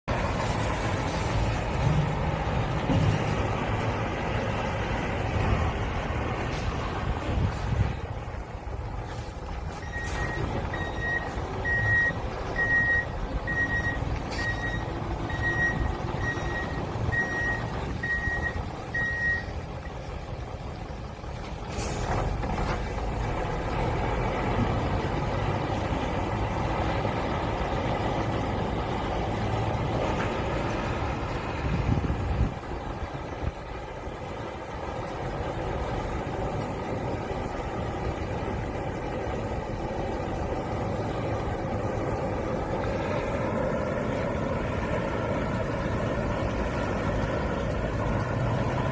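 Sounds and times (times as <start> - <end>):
diesel truck engine running: 0.0 - 48.9
reversing alarm beeping: 9.7 - 19.6.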